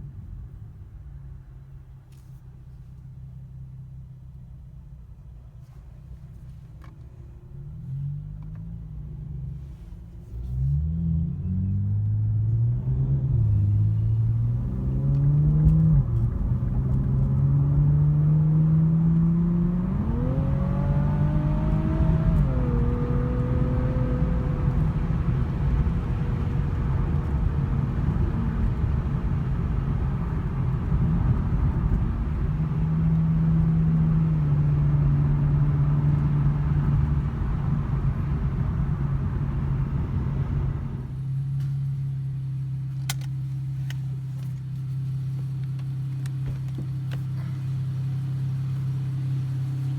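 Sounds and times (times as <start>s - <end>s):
road noise: 0.0s - 49.9s
car engine accelerating: 6.2s - 49.9s.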